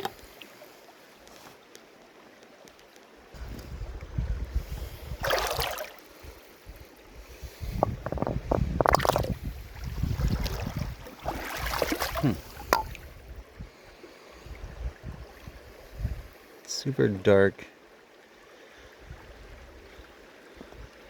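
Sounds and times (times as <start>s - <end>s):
wind buffeting microphone: 3.4s - 5.4s, 6.7s - 11.5s, 14.4s - 16.4s
river water rushing: 10.5s - 13.0s.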